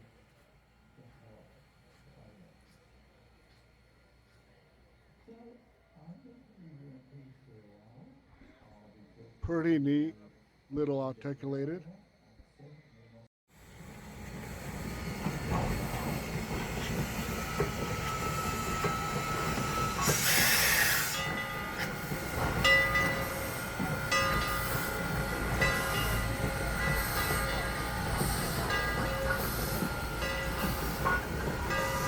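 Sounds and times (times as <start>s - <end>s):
steam locomotive running: 13.5s - 32.0s
steam hiss burst: 17.9s - 22.4s.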